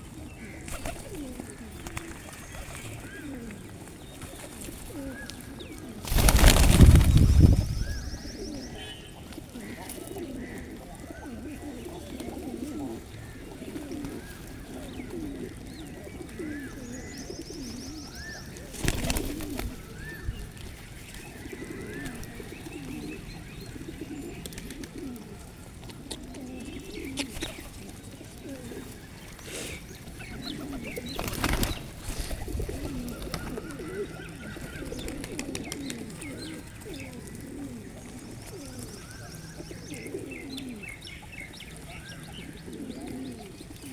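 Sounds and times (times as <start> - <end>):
pigeons cooing: 0.0 - 43.9
small birds chirping: 0.2 - 10.6, 11.2 - 25.2, 26.0 - 43.9
loud rustling bursts: 6.0 - 8.0.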